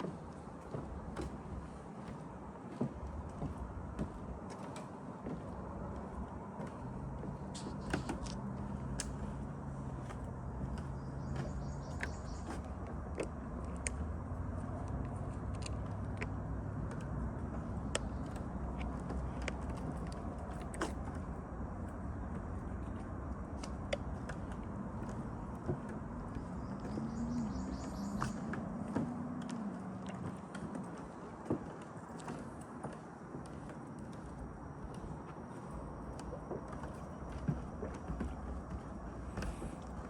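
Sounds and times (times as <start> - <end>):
distant engine drone: 0.0 - 40.0.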